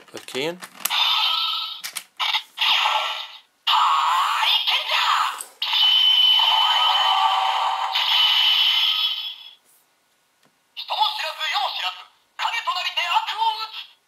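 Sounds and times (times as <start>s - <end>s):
toy electronic sound effects: 0.9s - 9.6s.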